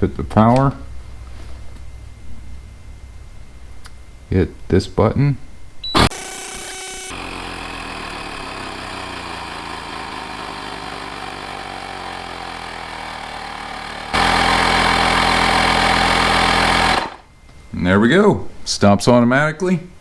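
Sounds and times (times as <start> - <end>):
small air compressor running: 6.0 - 17.3.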